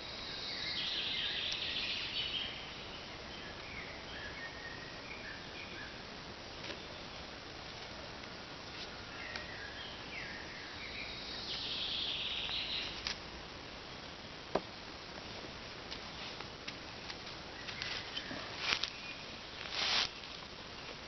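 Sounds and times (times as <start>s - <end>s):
birds calling: 0.0s - 7.4s, 8.8s - 13.1s
steady background hiss: 0.0s - 21.0s.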